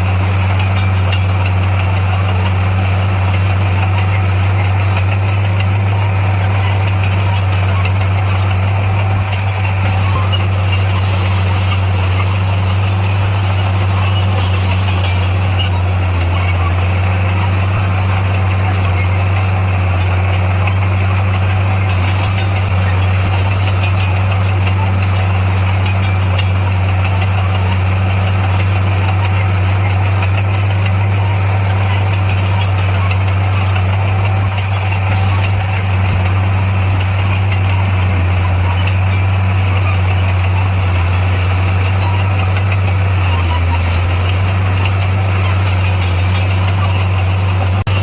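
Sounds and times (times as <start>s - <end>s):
diesel engine low drone: 0.0s - 48.0s.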